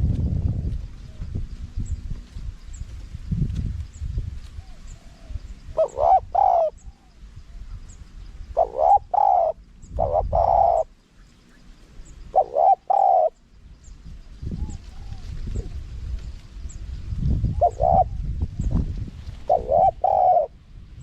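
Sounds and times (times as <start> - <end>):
dove cooing: 4.6 - 7.8, 8.5 - 11.0, 12.2 - 13.4, 14.5 - 15.8, 17.4 - 18.7, 19.4 - 20.6.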